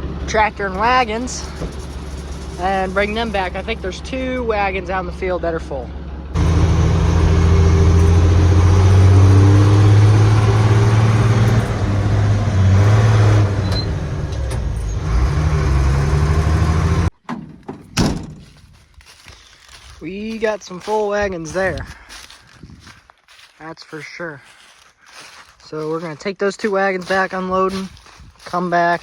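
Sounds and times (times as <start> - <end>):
truck engine running: 0.0 - 17.1
thump: 17.2 - 18.5.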